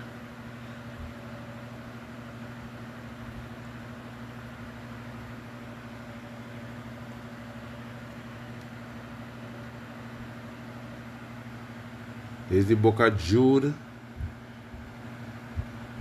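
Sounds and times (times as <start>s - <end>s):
low appliance drone: 0.0s - 16.0s.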